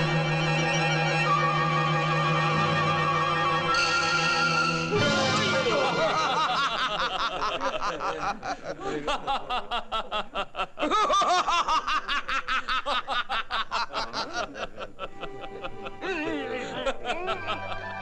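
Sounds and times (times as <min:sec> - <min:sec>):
group of people laughing: 0:05.0 - 0:18.0.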